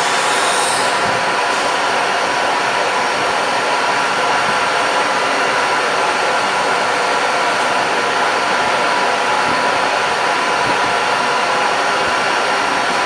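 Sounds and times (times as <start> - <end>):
router whirring with spindle whine: 0.0 - 1.7.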